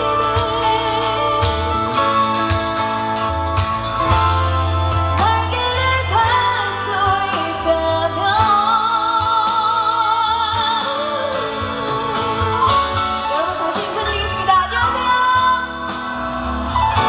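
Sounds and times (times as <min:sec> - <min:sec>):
woman singing a ballad: 0:00.0 - 0:02.6, 0:05.0 - 0:17.0
band backing music: 0:00.0 - 0:17.0.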